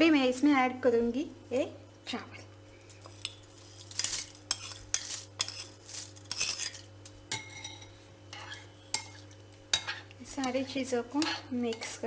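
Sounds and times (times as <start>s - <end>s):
spoon scraping and clinking bowl: 3.2s - 9.2s.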